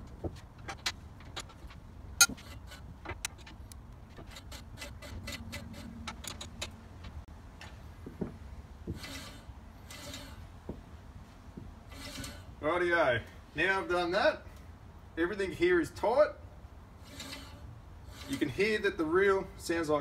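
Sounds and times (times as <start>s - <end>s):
metallic clicks of tools: 2.2s - 6.8s
scraping hisses: 17.0s - 18.8s.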